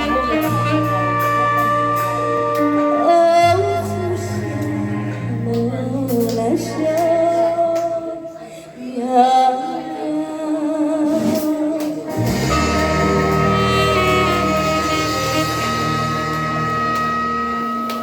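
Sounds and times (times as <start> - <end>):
deep bass line: 0.0 - 7.8, 12.1 - 18.0
backing track chords: 12.1 - 18.0.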